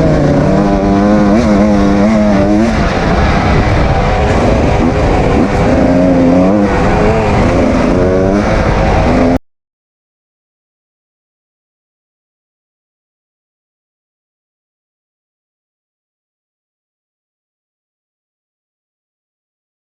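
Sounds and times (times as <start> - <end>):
dirt bike engine revving: 0.0 - 9.4.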